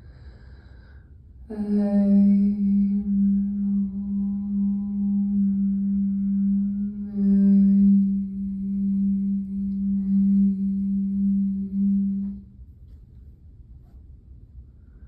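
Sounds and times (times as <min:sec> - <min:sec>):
singing bowl humming: 0:01.4 - 0:13.1.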